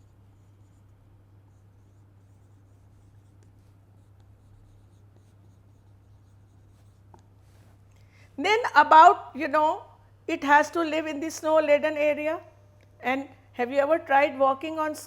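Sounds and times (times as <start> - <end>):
marker writing on board: 0.0 - 7.4
low electrical hum: 0.0 - 15.0.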